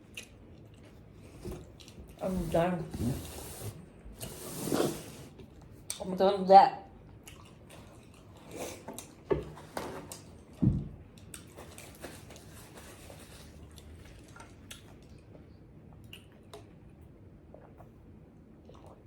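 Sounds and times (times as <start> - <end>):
wet chewing: 7.2 - 9.2.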